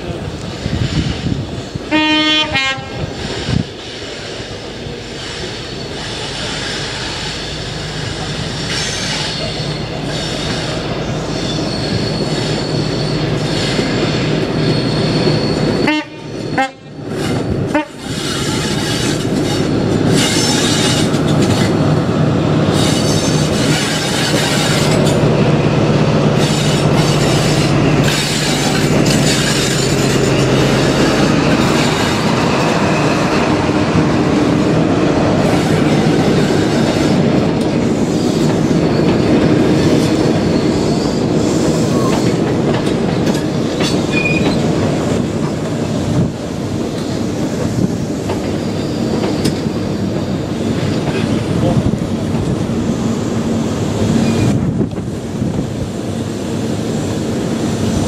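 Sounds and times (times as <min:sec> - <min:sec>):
wheels rumbling on rail: 0:00.0 - 0:58.0
high-pitched wheel squealing: 0:05.1 - 0:16.6.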